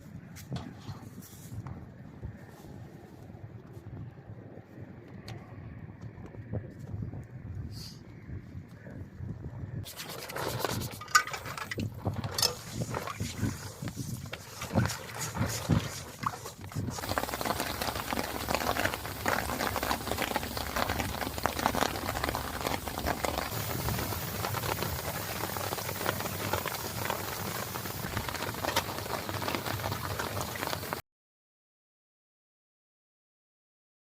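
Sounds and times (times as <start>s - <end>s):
heavy rain falling: 16.5s - 31.0s.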